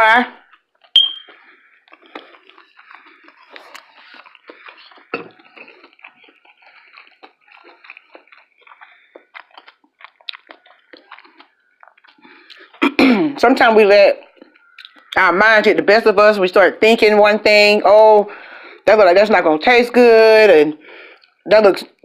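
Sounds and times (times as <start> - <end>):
close chewing with mouth clicks: 0.3 - 13.0, 14.2 - 15.2, 20.8 - 22.0
loud bite: 0.5 - 12.9.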